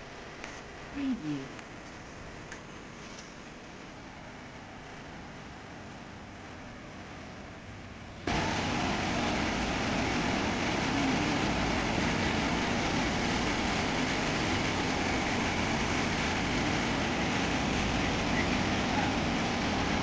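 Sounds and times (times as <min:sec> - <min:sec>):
water rushing through dam gate: 0:08.3 - 0:20.0.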